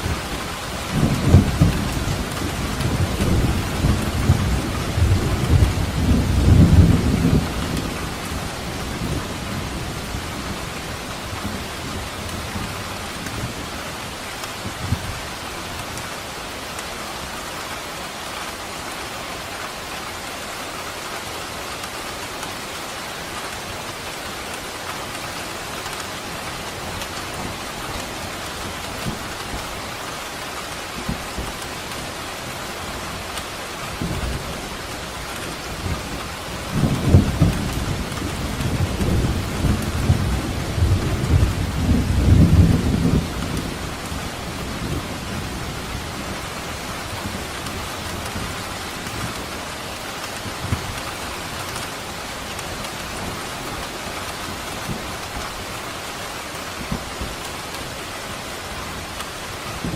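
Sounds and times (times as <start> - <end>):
steady rain falling: 0.0 - 59.9
rolling thunder: 0.8 - 10.6.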